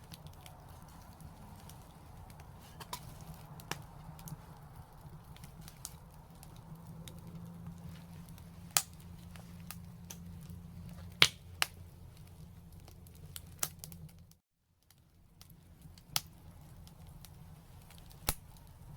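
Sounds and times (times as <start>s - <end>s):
low steady rumble: 0.0s - 14.4s
fire crackling and popping: 0.0s - 18.9s.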